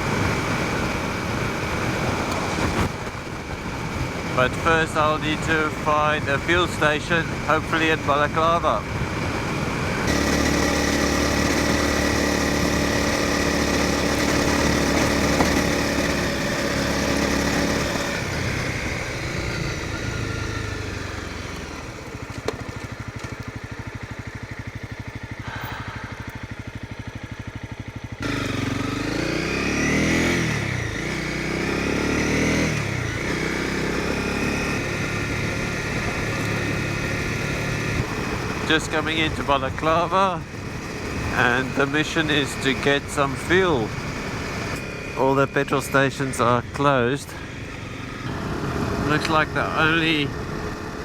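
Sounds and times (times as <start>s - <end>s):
motorcycle engine: 0.0s - 51.0s.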